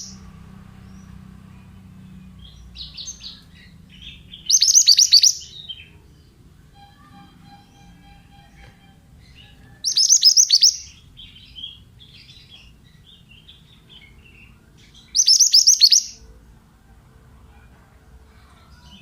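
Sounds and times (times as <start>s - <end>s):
soft bird chirps: 0.0s - 16.3s
bird whistling downward bursts: 4.5s - 5.4s, 9.8s - 10.9s, 15.2s - 16.1s.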